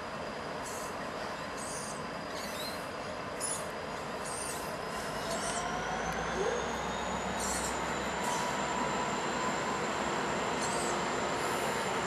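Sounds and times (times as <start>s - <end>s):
diesel locomotive engine under load: 0.0s - 12.0s
thin rising whine: 5.1s - 12.0s.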